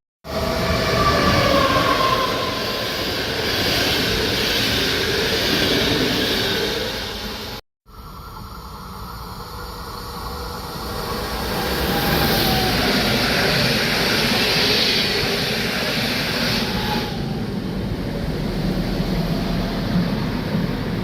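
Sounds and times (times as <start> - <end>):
train passing with rail noise: 0.3 - 21.0.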